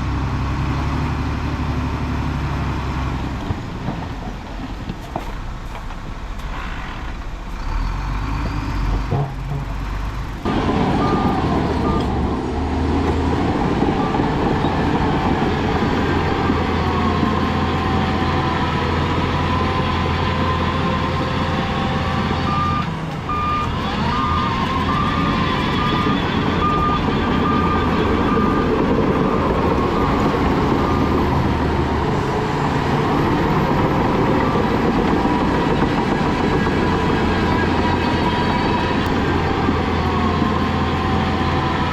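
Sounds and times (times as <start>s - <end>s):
heavy diesel machinery running: 0.0s - 41.9s
reversing alarm beeping: 10.5s - 12.3s, 20.4s - 31.6s.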